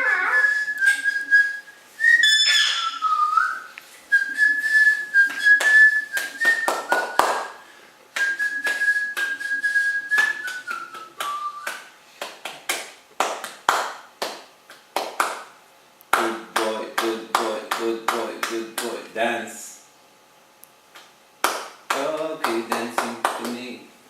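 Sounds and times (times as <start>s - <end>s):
person whistling: 0.0s - 7.6s, 8.2s - 11.9s.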